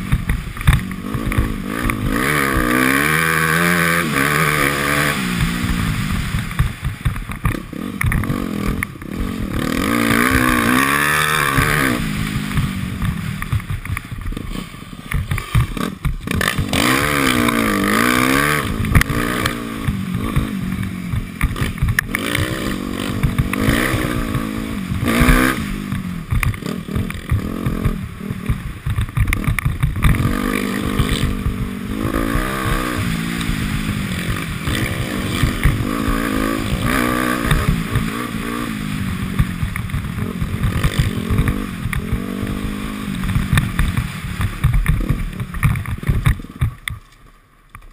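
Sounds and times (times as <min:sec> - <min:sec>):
dirt bike engine revving: 0:00.0 - 0:46.9
bike clattering over rough ground: 0:00.0 - 0:47.9.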